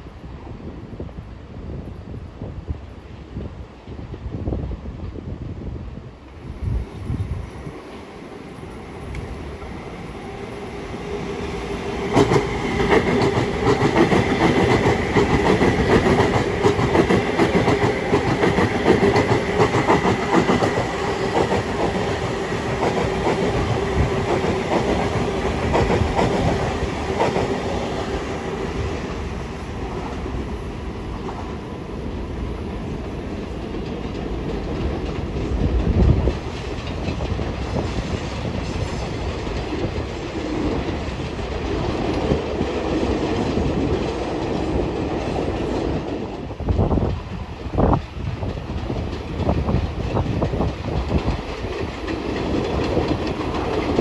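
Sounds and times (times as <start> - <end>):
train whine: 6.1 - 54.0
train wheels clicking over rail joints: 8.5 - 29.2, 32.8 - 54.0.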